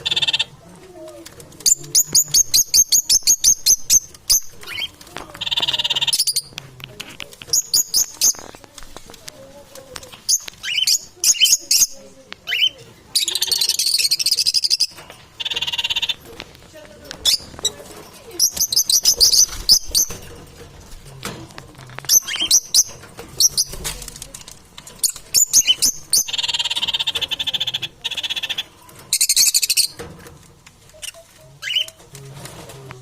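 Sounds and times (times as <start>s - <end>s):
parrots chirping: 0.0s - 0.6s, 1.6s - 6.6s, 7.4s - 8.6s, 10.1s - 16.5s, 17.1s - 20.9s, 22.0s - 30.1s, 30.8s - 32.1s.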